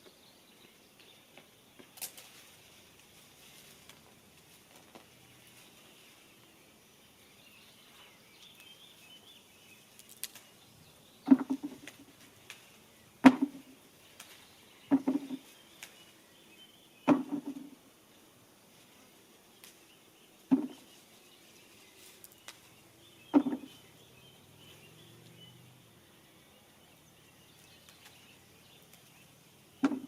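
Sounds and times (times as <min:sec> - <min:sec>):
sharp knocks with rattling thump: 0:11.2 - 0:12.0, 0:13.2 - 0:13.7, 0:14.9 - 0:15.4, 0:17.0 - 0:17.8, 0:20.5 - 0:20.8, 0:23.3 - 0:23.7, 0:29.8 - 0:30.0
faint bird chirps: 0:19.8 - 0:30.0.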